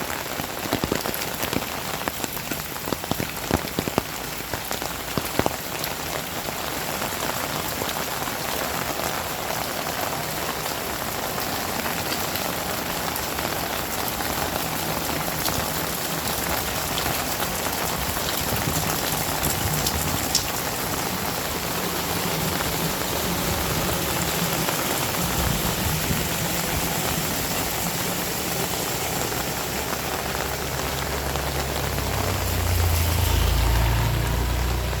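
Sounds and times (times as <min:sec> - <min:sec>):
heavy rain: 0:00.0 - 0:35.0
low hum: 0:32.2 - 0:35.0.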